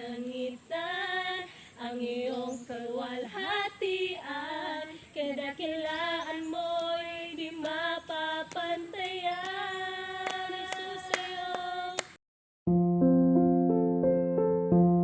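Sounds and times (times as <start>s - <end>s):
woman singing unaccompanied: 0.0s - 12.1s
soft electric piano music: 12.7s - 15.0s.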